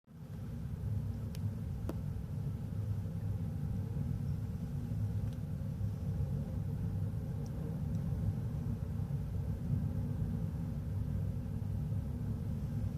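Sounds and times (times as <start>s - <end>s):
faint click: 1.3s - 2.0s.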